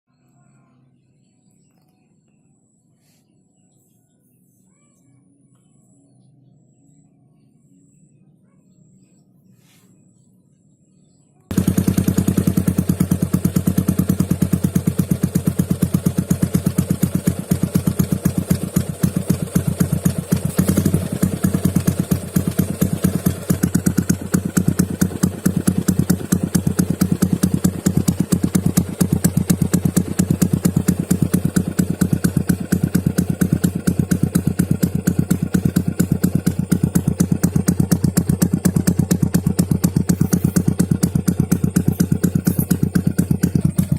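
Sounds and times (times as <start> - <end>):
motorcycle engine idling: 11.5 - 43.9.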